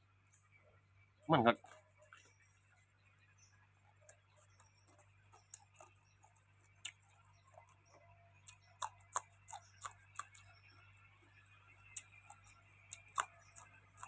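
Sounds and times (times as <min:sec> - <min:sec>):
chewing clicks and crunches: 0:03.9 - 0:14.0.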